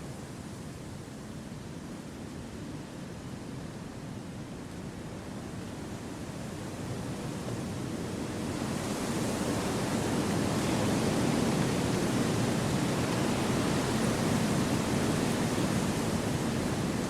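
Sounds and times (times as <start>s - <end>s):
wind rushing through trees: 7.6s - 17.0s.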